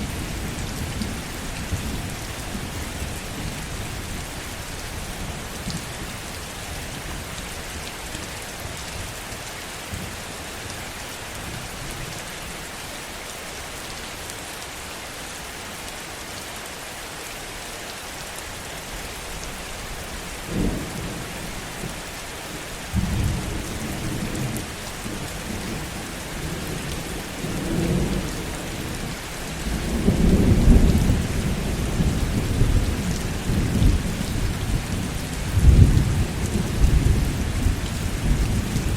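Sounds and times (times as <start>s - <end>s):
heavy rain: 0.0s - 38.9s
thunder rumbling: 29.6s - 38.9s.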